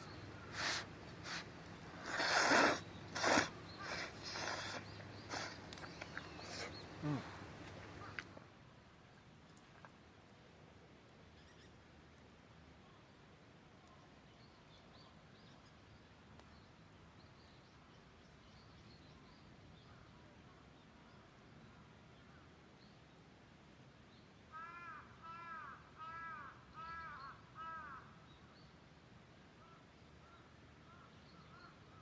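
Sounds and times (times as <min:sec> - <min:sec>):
crow cawing: 0:24.5 - 0:28.1.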